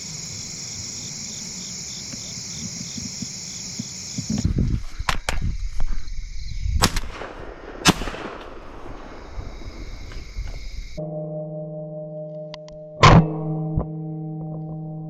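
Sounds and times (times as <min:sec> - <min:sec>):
crickets chirring: 0:00.0 - 0:07.8, 0:08.5 - 0:11.0.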